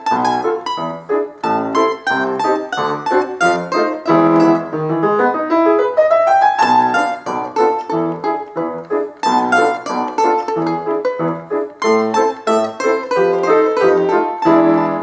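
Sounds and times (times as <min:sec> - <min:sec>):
piano accompaniment: 0:00.0 - 0:15.0
plucked string instrument tune: 0:00.0 - 0:15.0.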